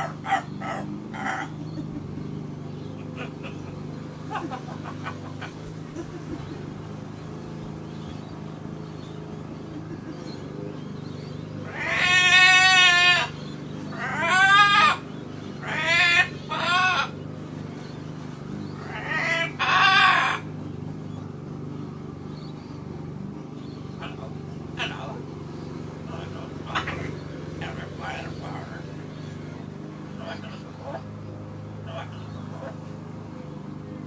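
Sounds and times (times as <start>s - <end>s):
macaw parrot calling: 0.0s - 2.0s, 11.3s - 21.2s, 23.7s - 31.1s, 31.7s - 32.8s.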